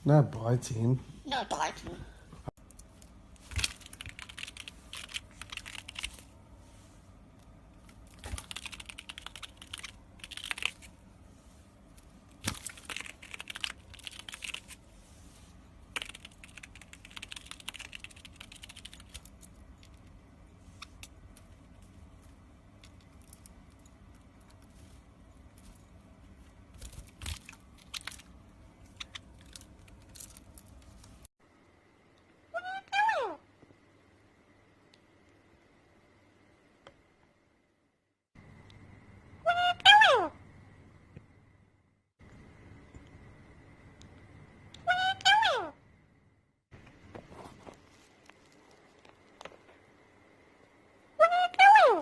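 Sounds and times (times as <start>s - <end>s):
parrot crunching with beak: 2.8s - 6.3s, 7.9s - 11.0s, 12.4s - 14.8s, 15.9s - 20.2s, 26.7s - 31.2s.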